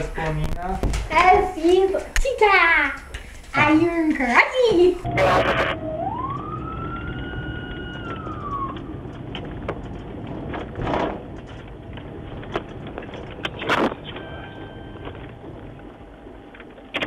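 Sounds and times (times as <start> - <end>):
siren wailing: 5.1 - 9.6.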